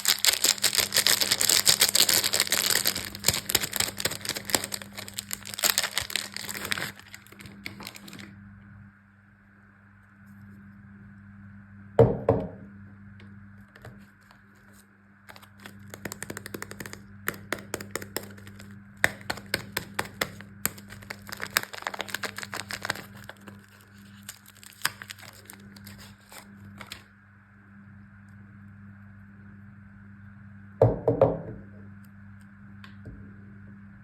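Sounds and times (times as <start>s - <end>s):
wrapper crinkling: 0.0s - 8.3s, 13.7s - 27.1s
low steady hum: 0.0s - 34.0s.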